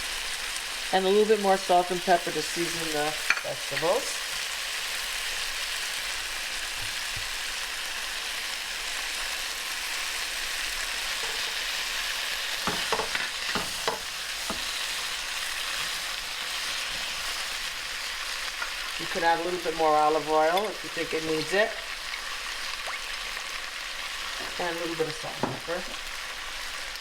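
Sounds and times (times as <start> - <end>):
vegetables sizzling in frying pan: 0.0 - 27.0
utensil knocking against pan: 12.6 - 14.7.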